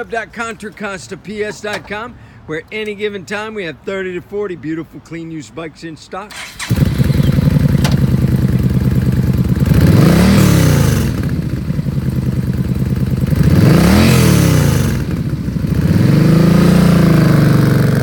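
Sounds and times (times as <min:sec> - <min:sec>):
motorcycle engine idling and revving: 0:06.4 - 0:18.0.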